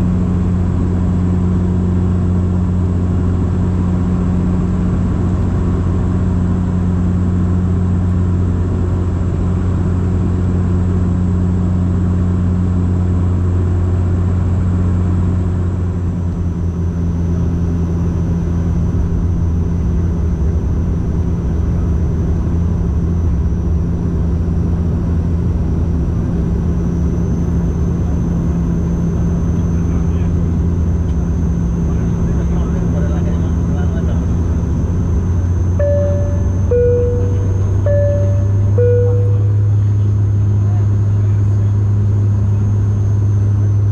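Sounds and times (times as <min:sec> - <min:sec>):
airplane engine and airflow noise: 0:00.0 - 0:43.9
propeller hum: 0:15.5 - 0:43.9.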